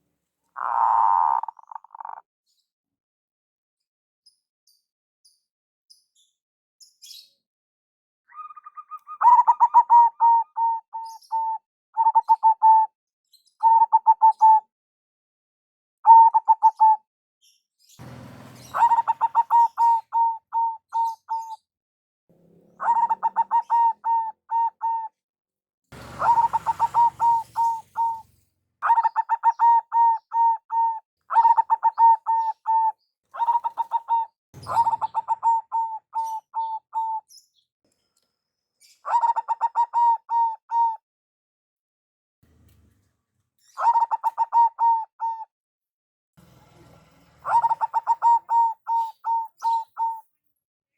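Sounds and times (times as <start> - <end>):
dove cooing: 0.6 - 2.2, 8.3 - 12.9, 13.6 - 14.6, 18.0 - 21.6, 22.5 - 25.1, 26.0 - 37.2, 39.1 - 41.0, 43.8 - 45.5, 47.4 - 50.2.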